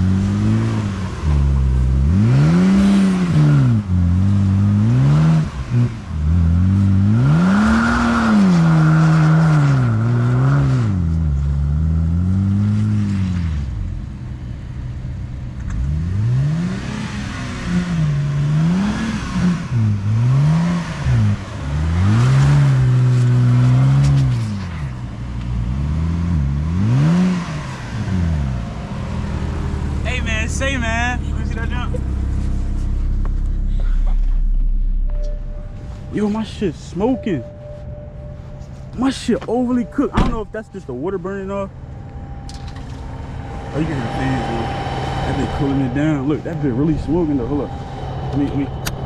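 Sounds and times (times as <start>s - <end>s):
car engine revving: 0.0s - 49.0s.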